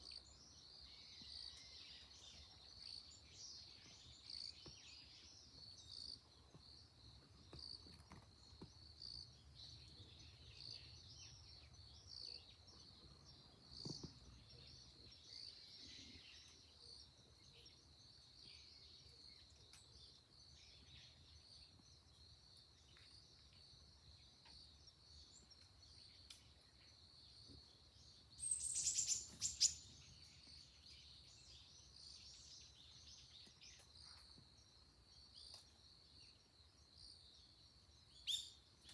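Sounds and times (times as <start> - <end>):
faint birdsong: 0.0 - 38.9
small bird chirps: 22.8 - 36.4, 38.1 - 38.9.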